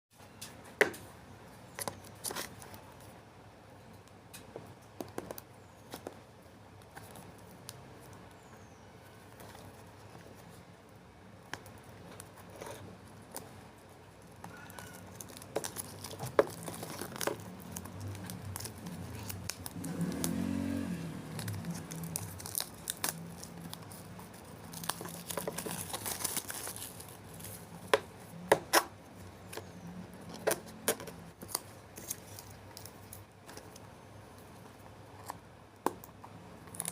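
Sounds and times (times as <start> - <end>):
wrapping crinkling and tearing: 14.2 - 28.0, 36.7 - 36.9.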